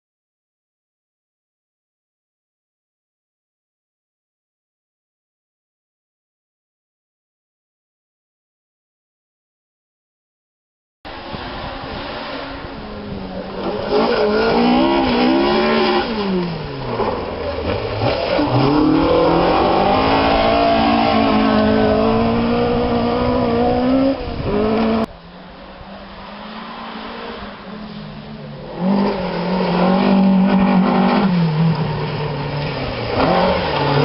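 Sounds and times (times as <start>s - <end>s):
rally car engine revving hard: 11.1s - 25.1s, 26.1s - 34.0s
distant car engine: 11.1s - 34.0s.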